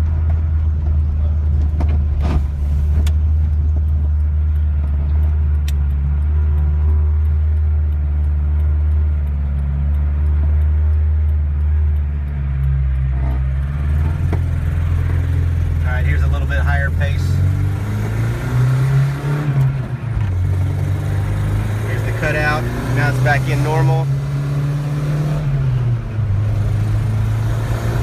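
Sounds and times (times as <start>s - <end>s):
engine and road noise drone: 0.0s - 28.0s
sharp clicks: 3.0s - 23.6s.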